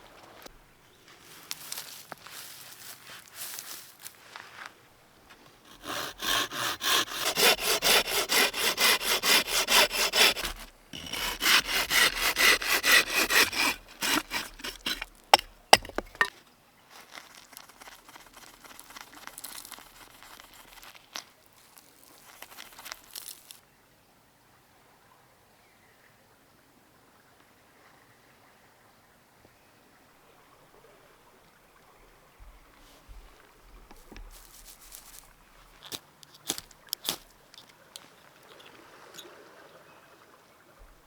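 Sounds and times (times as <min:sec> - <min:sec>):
hand saw cutting wood: 0:05.7 - 0:16.3, 0:17.5 - 0:20.9, 0:33.9 - 0:37.4
handling noise: 0:13.2 - 0:16.4, 0:33.2 - 0:38.8
sharp knocks: 0:13.3 - 0:16.3.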